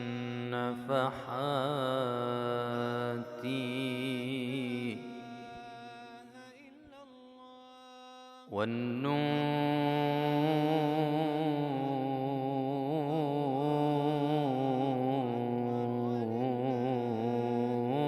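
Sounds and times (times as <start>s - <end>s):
man chanting melismatic vowel: 8.1s - 18.0s.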